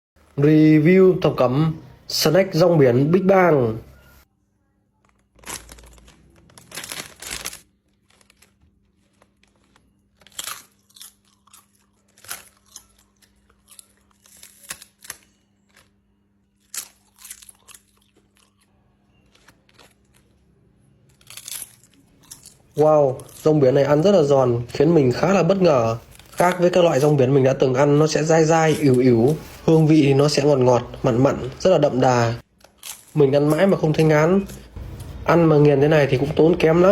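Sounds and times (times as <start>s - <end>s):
crispy seaweed crunching: 5.0s - 31.2s, 32.5s - 35.2s.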